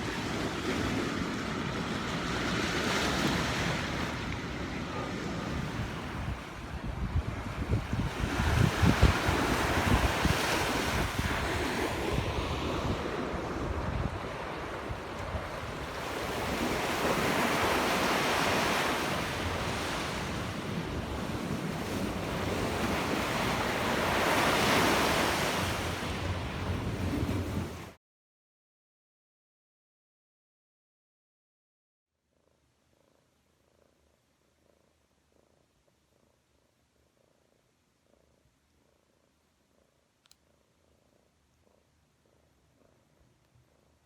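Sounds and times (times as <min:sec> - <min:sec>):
wind rumbling on microphone: 0:00.0 - 0:28.0
surf washing in: 0:07.6 - 0:28.0.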